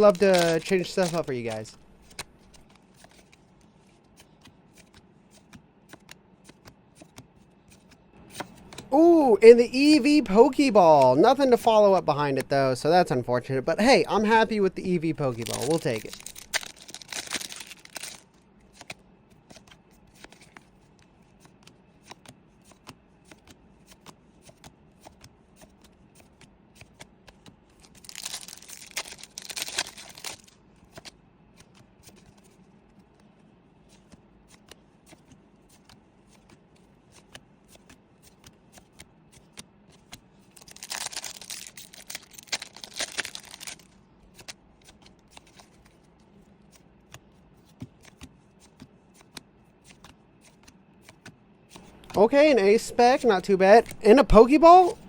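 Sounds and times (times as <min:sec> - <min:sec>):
foil wrappers crinkling and tearing: 0:00.0 - 0:03.2, 0:14.9 - 0:18.4, 0:27.7 - 0:31.1, 0:40.5 - 0:44.0
cards clicking being flipped: 0:00.0 - 0:08.9, 0:15.1 - 0:32.6, 0:33.9 - 0:46.0, 0:46.7 - 0:52.2.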